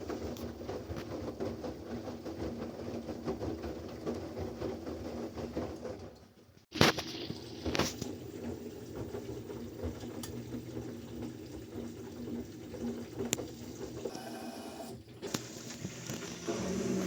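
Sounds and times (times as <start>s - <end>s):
washing machine running: 0.0s - 17.0s
water flowing into machine: 6.8s - 17.0s.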